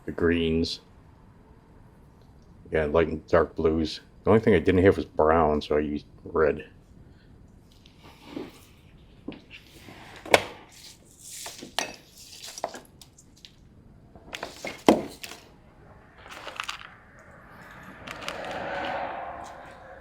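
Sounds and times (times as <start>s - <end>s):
soft rushing noise: 15.4s - 20.0s.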